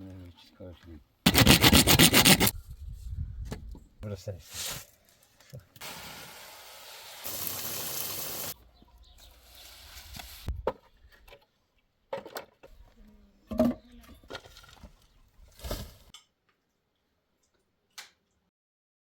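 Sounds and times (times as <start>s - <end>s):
water running: 5.8s - 8.6s.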